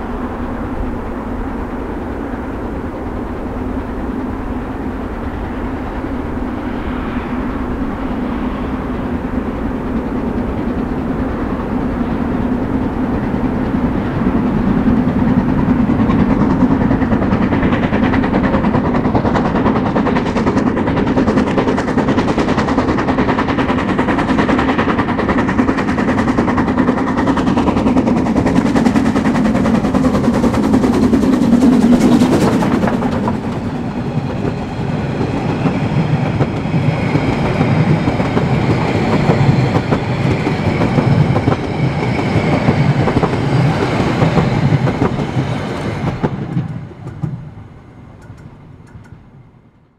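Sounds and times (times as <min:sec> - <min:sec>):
steam train rumbling on track: 0:00.0 - 0:49.9
rapid clicking beats: 0:15.2 - 0:47.5, 0:48.2 - 0:49.2.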